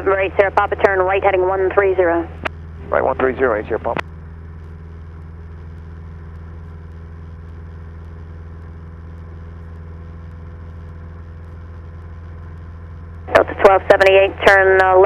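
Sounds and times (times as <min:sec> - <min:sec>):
airplane engine and propeller drone: 0:00.0 - 0:15.0.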